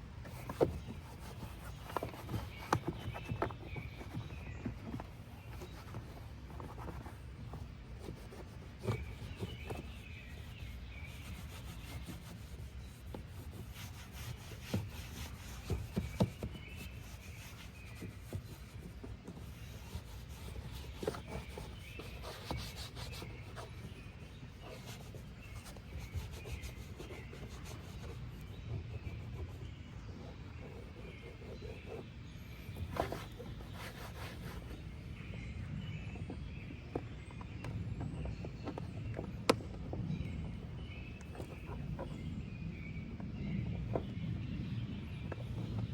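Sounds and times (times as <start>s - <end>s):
scrubbing and rubbing surfaces: 0.2s - 29.6s, 30.2s - 35.1s.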